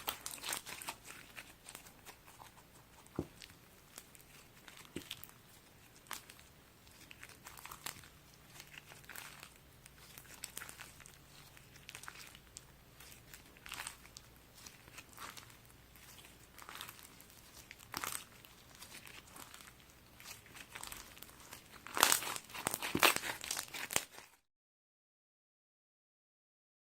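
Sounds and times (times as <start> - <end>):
slime crackling and popping: 0.0 - 24.4.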